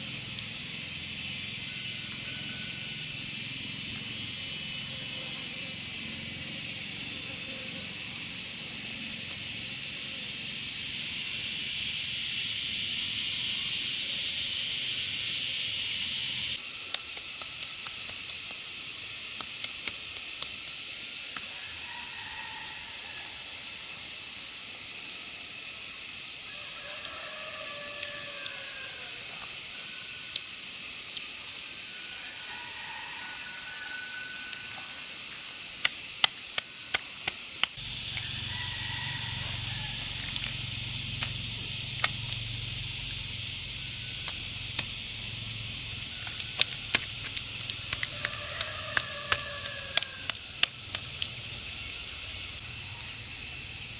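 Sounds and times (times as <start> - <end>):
high-pitched insect drone: 0.0 - 16.6, 37.8 - 53.9
faint sliding calls: 37.8 - 52.6.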